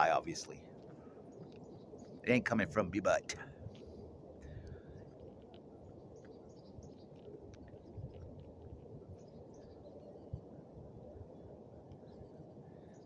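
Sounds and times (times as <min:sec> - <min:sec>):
faint bird chirps: 0:03.5 - 0:13.0.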